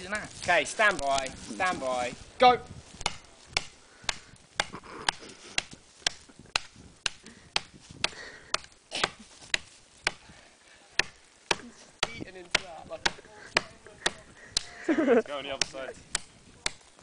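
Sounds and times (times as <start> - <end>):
axe chopping tree trunk: 3.0 - 10.3, 11.0 - 14.7, 15.6 - 16.9.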